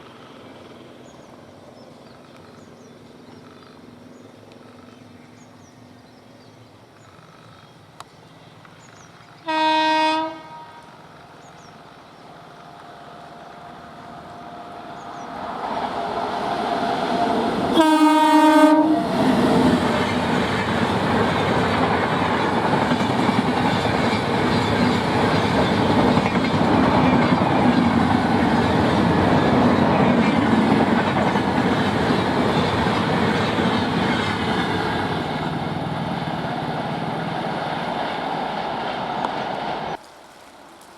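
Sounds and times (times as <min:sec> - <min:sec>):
train rumble and wheel clatter: 0:08.6 - 0:40.1
train horn blasts: 0:09.4 - 0:11.1, 0:17.7 - 0:19.4.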